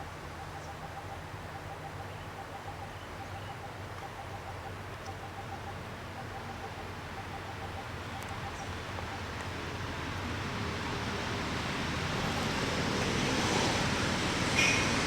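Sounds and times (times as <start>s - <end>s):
steady rushing noise: 8.7s - 15.0s.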